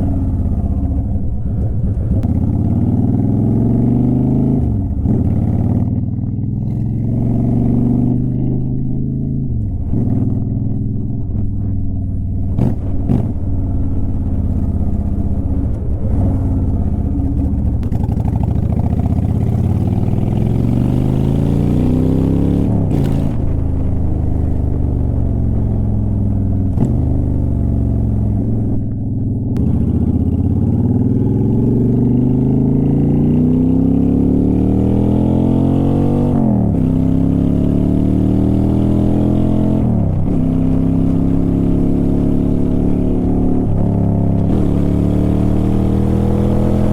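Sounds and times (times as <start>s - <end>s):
motorcycle engine shifting gears: 0.0s - 46.9s.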